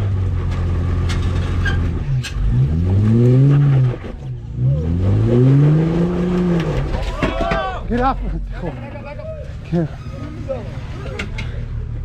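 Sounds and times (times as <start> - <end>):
vehicle engine revving: 0.0 - 7.2.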